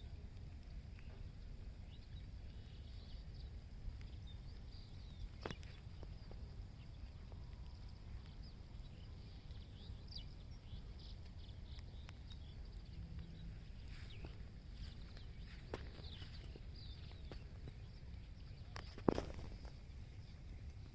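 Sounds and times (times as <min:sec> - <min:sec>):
low outdoor rumble: 0:00.0 - 0:20.9
small birds chirping: 0:00.0 - 0:20.9.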